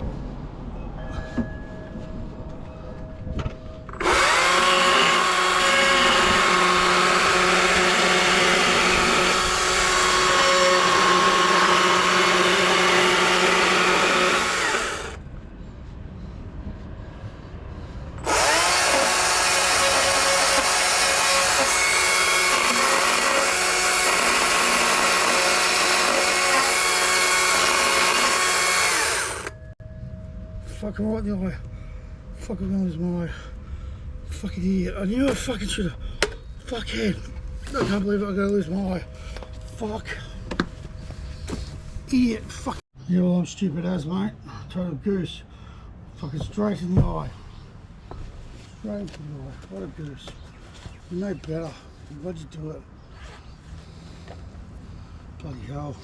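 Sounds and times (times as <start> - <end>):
electric power tool running: 3.9 - 15.2, 18.2 - 29.7.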